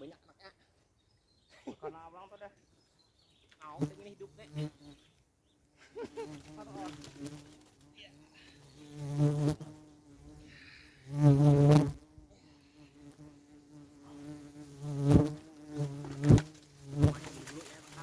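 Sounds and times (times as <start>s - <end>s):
insect buzzing: 3.6s - 5.3s, 6.0s - 18.0s.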